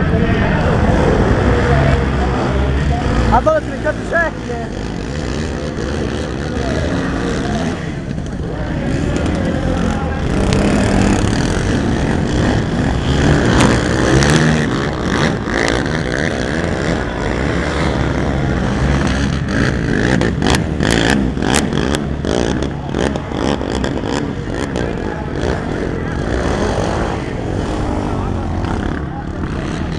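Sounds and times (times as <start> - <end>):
racing atv engines revving: 0.0 - 29.9.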